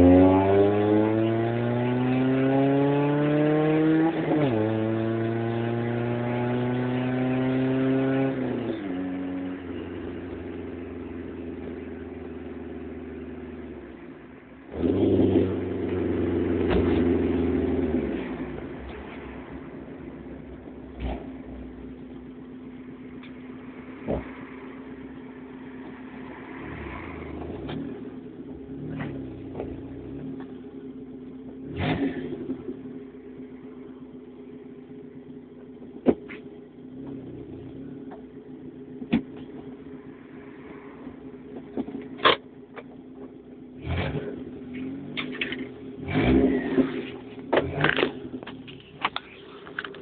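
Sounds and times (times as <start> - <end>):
car engine idling: 9.5 - 14.8, 15.5 - 50.0.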